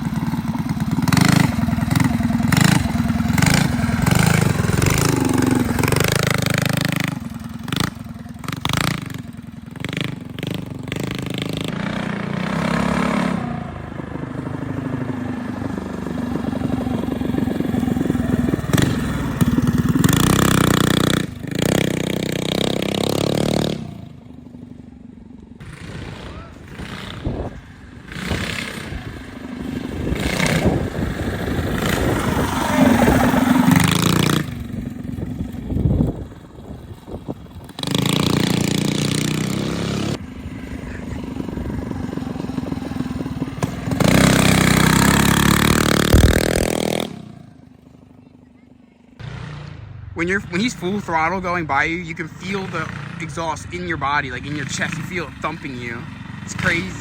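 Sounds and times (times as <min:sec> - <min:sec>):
dirt bike engine revving: 0:00.0 - 0:24.8, 0:25.5 - 0:48.4, 0:49.2 - 0:57.0.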